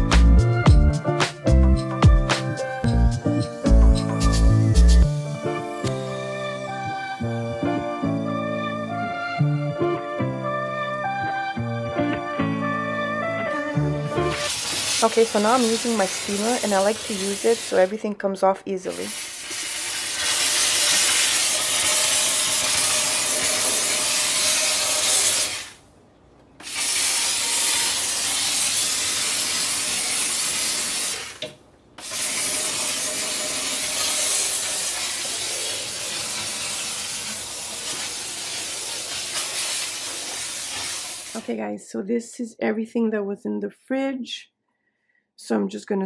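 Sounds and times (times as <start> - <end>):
steam cleaner hissing: 14.1 - 18.0, 18.8 - 25.8, 26.6 - 41.5.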